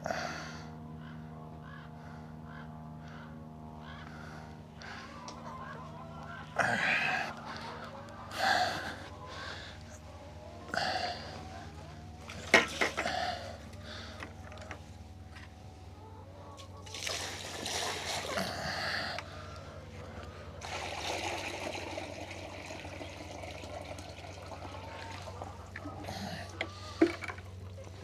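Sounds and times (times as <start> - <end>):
water splashing into a container: 16.8 - 18.6, 20.6 - 25.4.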